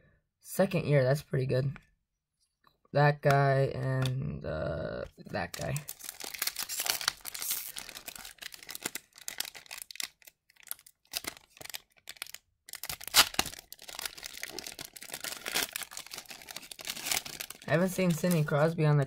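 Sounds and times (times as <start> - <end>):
cards rustling: 5.2 - 18.8
wrapper crinkling and tearing: 5.4 - 18.8.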